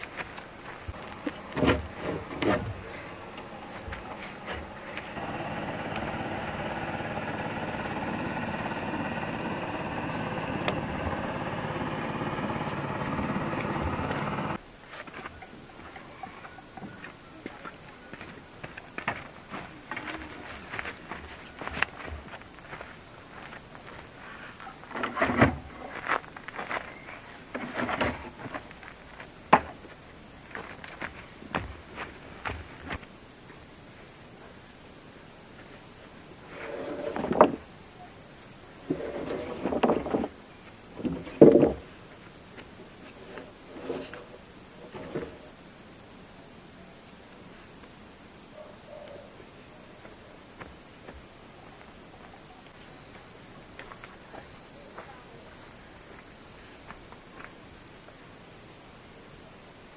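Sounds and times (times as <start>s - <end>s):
engine running: 0.0s - 14.6s.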